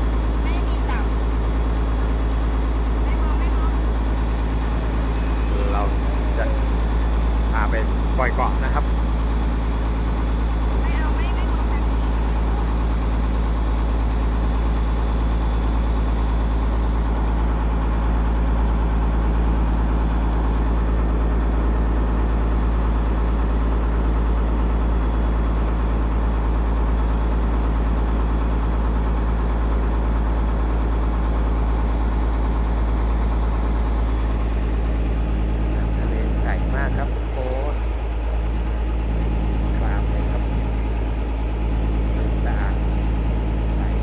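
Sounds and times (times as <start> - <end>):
boat engine droning: 0.0 - 44.0.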